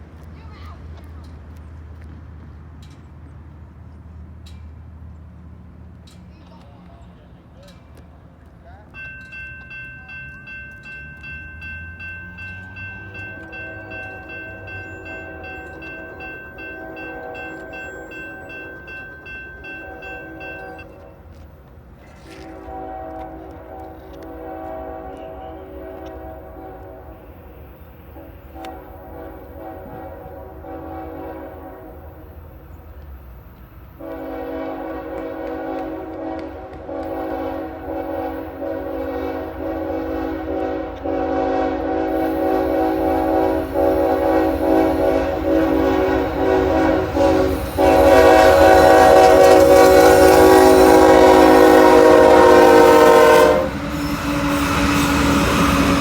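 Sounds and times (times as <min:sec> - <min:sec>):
train rumble: 0:00.0 - 0:56.0
locomotive air horn blasts: 0:13.0 - 0:17.9, 0:19.6 - 0:21.4, 0:22.0 - 0:32.4, 0:34.0 - 0:56.0.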